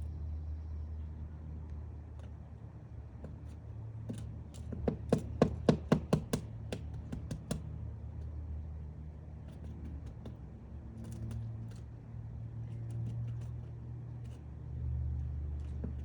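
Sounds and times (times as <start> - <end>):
woodpecker knocking on wood: 3.1 - 7.7, 9.5 - 11.8.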